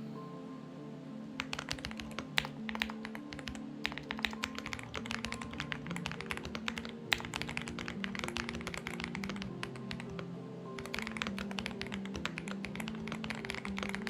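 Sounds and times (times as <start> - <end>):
soft background music: 0.0 - 14.0
mechanical keyboard typing: 1.4 - 10.2, 10.8 - 14.0.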